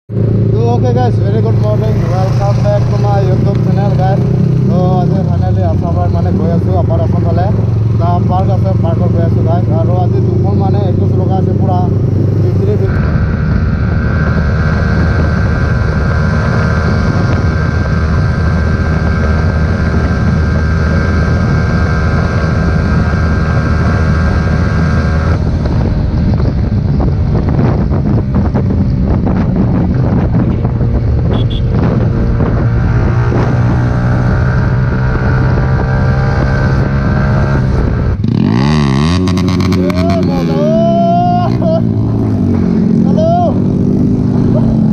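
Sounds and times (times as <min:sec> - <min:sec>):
loud motorcycle engine revving: 0:00.1 - 0:44.9.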